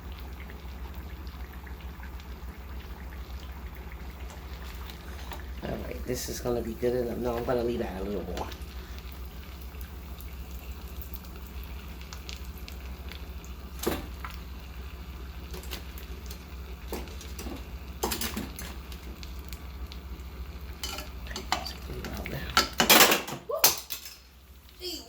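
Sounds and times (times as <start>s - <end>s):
spring rolls sizzling in oil: 0.0s - 25.0s.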